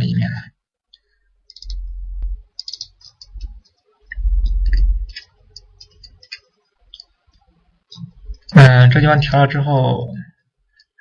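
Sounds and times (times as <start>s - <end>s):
computer mouse clicking: 0.9s - 8.5s
low rumbling thumps: 1.7s - 2.5s, 4.2s - 5.1s.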